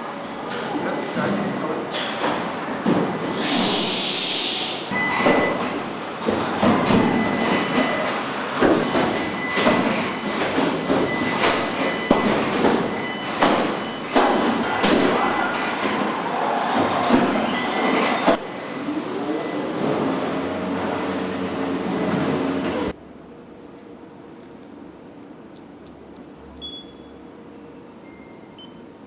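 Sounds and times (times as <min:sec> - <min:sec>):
high-pitched machinery hum: 0:00.0 - 0:22.9.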